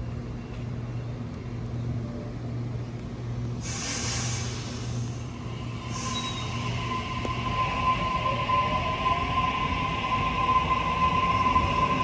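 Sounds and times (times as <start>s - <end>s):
electric train humming: 0.0s - 12.0s
loud air hiss from train: 3.6s - 7.2s.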